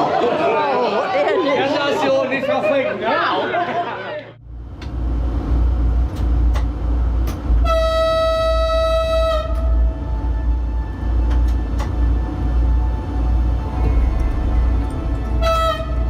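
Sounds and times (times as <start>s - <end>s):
train rumbling: 4.4s - 16.0s
train horn: 7.6s - 12.0s, 12.7s - 16.0s.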